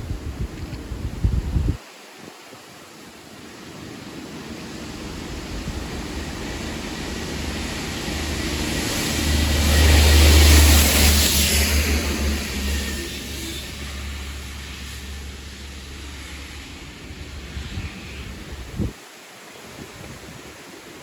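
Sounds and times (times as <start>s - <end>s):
broad hiss of passing train: 0.0s - 21.0s
diesel engine drone: 4.5s - 18.9s.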